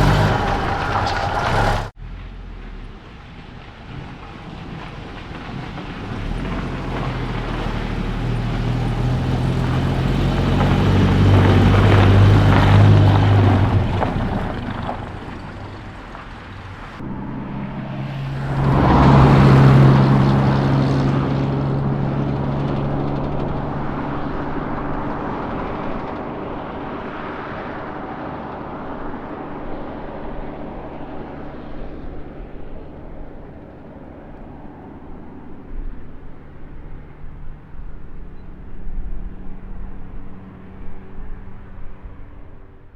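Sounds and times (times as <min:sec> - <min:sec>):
pickup truck engine driving: 0:00.0 - 0:42.5.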